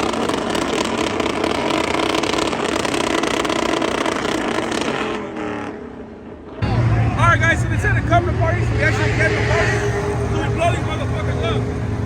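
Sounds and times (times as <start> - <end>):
vehicle engines running: 0.0 - 12.0
dense loud noise: 6.6 - 12.0.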